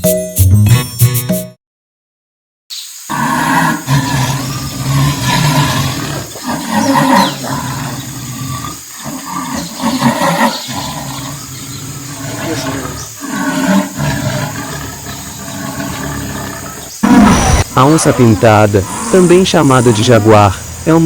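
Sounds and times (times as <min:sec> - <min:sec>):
jaguar roaring: 0:03.1 - 0:21.0.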